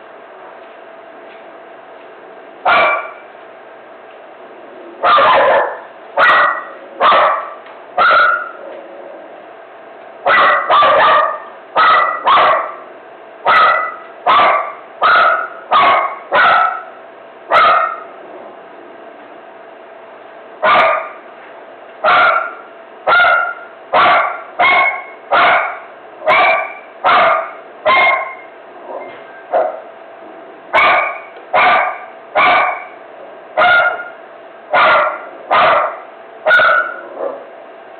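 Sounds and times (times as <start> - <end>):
dog barking: 2.7 - 3.3, 5.0 - 8.6, 10.2 - 18.1, 20.6 - 21.2, 22.0 - 29.9, 30.8 - 33.0, 33.6 - 37.5.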